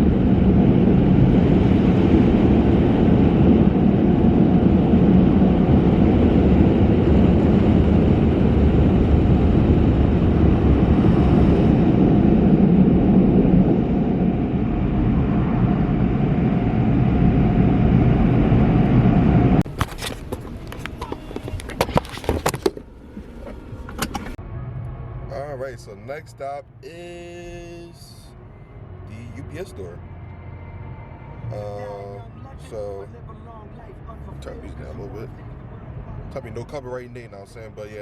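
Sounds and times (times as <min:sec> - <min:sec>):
loud steady rumbling: 0:00.0 - 0:38.0
sharp clicks and knocks: 0:19.6 - 0:24.4.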